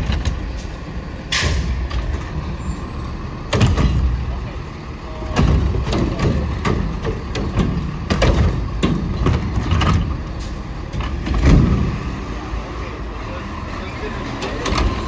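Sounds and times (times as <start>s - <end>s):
knocks and clanks: 0.0s - 0.7s, 3.4s - 12.2s
garbage truck engine rumbling: 0.0s - 15.0s.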